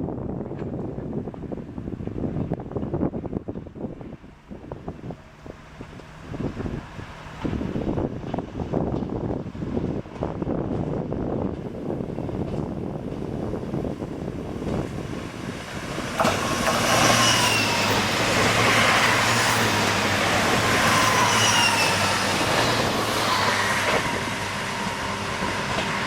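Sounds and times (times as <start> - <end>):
train wheels rushing on rails: 0.5 - 26.0
high squealing glides: 15.6 - 26.0.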